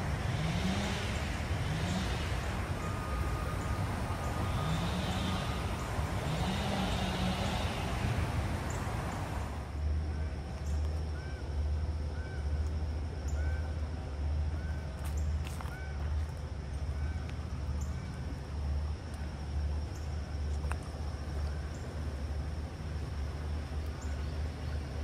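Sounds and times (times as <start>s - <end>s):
broad rushing noise: 0.0s - 9.8s.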